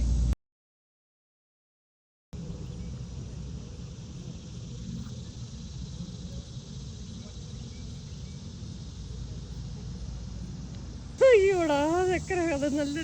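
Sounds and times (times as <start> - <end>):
low rumble: 0.0 - 0.4
faint high hiss: 2.4 - 13.0.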